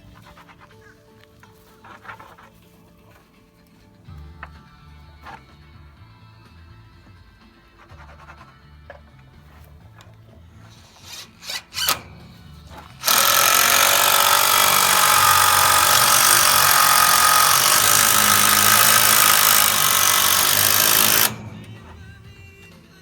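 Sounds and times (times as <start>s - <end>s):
power tool running: 10.8s - 22.3s.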